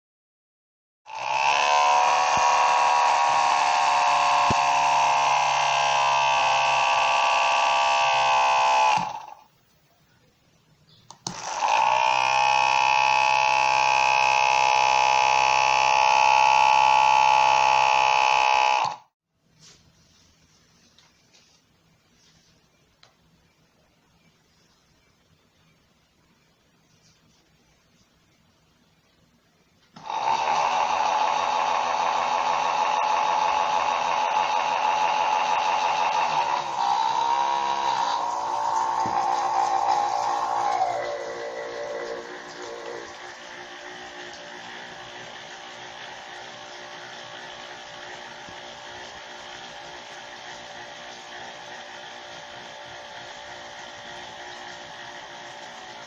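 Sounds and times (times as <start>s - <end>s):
blender motor whining: 1.1s - 9.5s, 11.3s - 19.1s, 30.0s - 56.0s
blender switch click: 4.4s - 4.7s.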